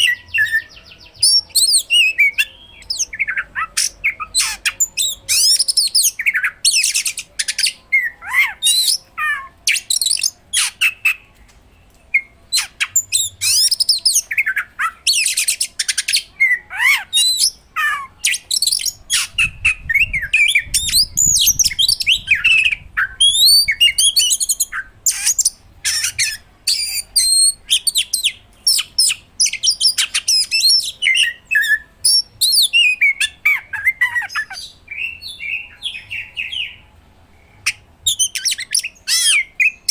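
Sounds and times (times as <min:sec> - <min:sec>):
magpie-robin singing: 0:00.0 - 0:11.4, 0:12.0 - 0:39.9.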